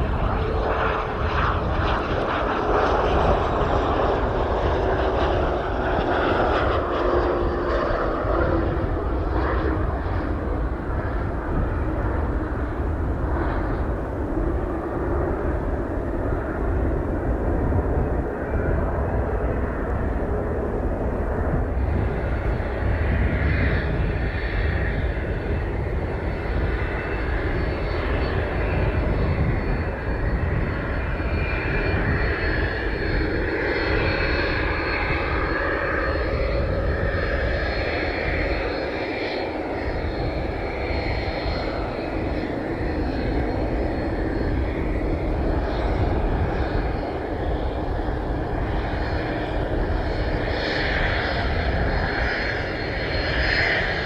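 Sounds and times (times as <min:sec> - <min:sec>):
aircraft engines running: 0:00.0 - 0:54.0.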